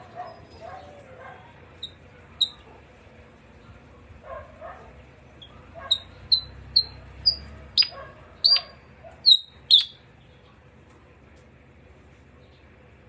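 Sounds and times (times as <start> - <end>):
bird chirping high notes: 5.9 - 10.0.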